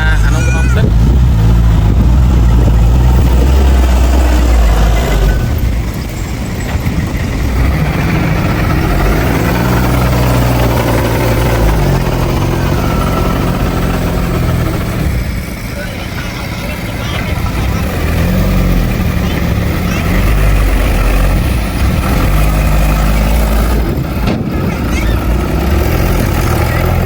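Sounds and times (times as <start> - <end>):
heavy diesel engine running: 0.0 - 27.0.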